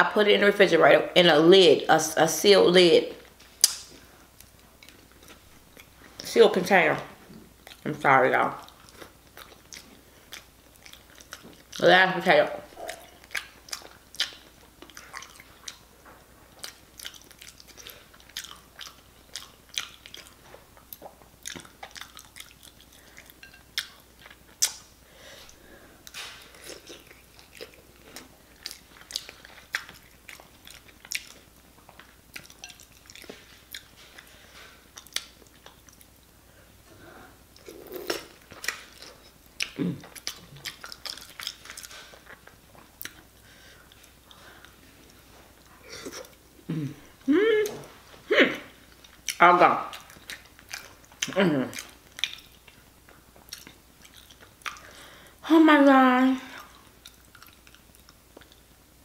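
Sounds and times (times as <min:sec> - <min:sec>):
chewing with wet mouth smacks: 0:03.6 - 0:06.2, 0:07.3 - 0:07.9, 0:08.6 - 0:11.9, 0:12.6 - 0:24.9, 0:25.5 - 0:36.2, 0:37.5 - 0:46.4, 0:48.9 - 0:55.0, 0:56.5 - 0:58.7.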